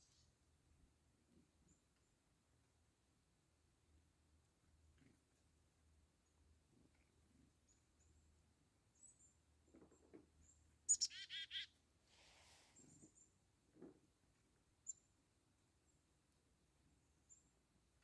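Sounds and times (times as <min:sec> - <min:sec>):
chickadee calling: 0:10.9 - 0:11.8.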